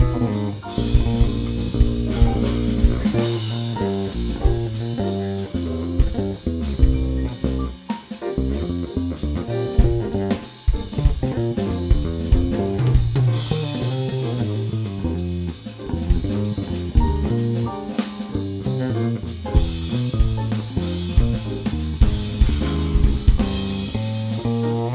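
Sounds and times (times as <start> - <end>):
cymbals: 0.0 - 8.4
bass guitar: 0.0 - 24.9
drum kit: 0.0 - 24.9
guitar: 0.0 - 24.9.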